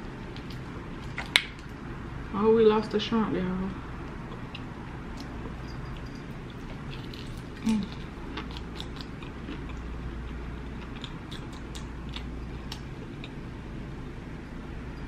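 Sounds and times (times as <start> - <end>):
steady low hum: 0.0 - 15.0
crisp chewing crunches: 4.2 - 13.4
wet mouth clicks: 11.0 - 13.4.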